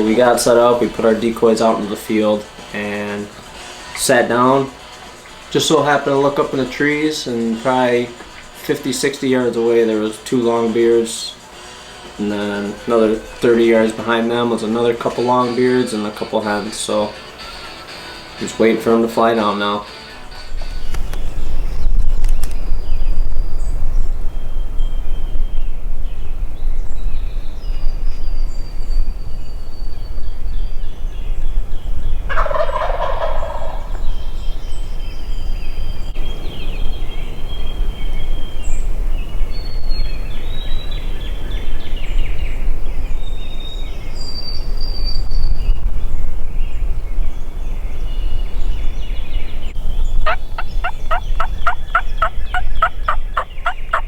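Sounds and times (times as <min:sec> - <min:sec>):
turkey gobbling: 0:00.0 - 0:20.8, 0:32.3 - 0:34.1, 0:50.2 - 0:54.0
small songbirds chirping: 0:00.0 - 0:54.0.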